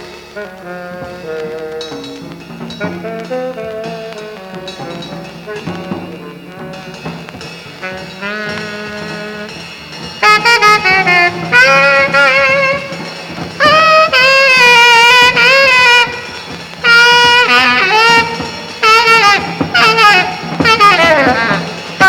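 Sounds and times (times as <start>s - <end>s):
double bass: 0.0s - 16.2s
drums: 0.0s - 22.0s
saxophone long vibrato notes: 0.0s - 22.0s.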